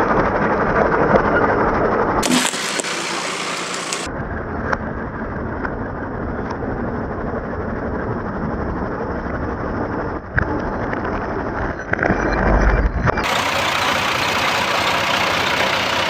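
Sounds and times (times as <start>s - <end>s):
tractor engine running: 2.2s - 4.1s, 13.2s - 16.0s.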